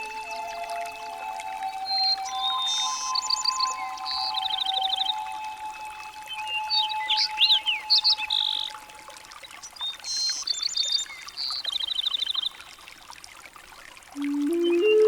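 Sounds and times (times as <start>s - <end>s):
songbirds singing: 1.6s - 12.8s, 14.2s - 15.0s.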